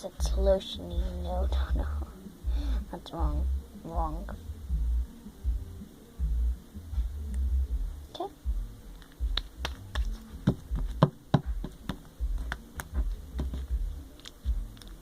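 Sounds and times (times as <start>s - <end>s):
dull thumps of handling: 9.3s - 13.8s.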